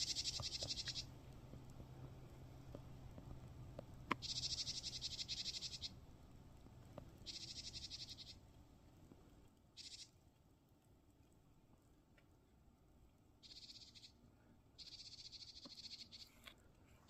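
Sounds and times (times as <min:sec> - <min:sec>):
small bird trilling: 0:00.0 - 0:01.1, 0:04.2 - 0:06.0, 0:07.2 - 0:08.4, 0:09.8 - 0:10.1, 0:13.4 - 0:14.2, 0:14.8 - 0:16.4.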